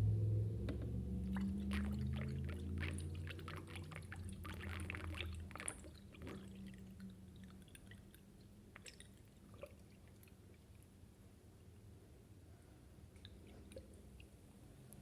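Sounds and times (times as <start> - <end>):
water dripping: 0.8 - 10.4
water sloshing and splashing: 1.2 - 8.2.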